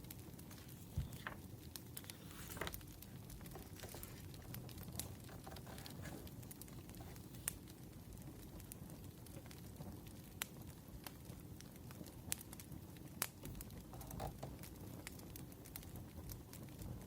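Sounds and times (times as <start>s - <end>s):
wood fire crackling: 0.0s - 17.0s
low steady rumble: 0.4s - 1.4s.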